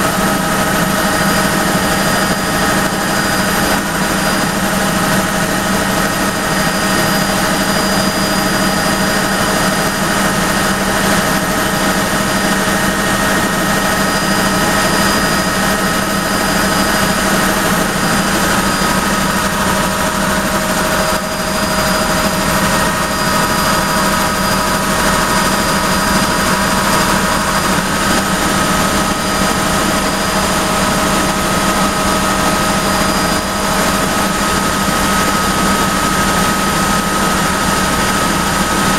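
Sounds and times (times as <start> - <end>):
helicopter drone: 0.0 - 38.9
turbine whine: 0.0 - 38.9.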